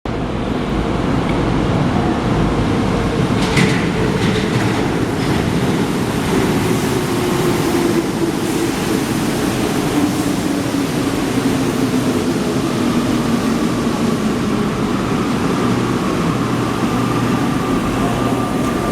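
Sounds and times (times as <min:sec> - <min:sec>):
train rumbling: 0:00.1 - 0:18.9.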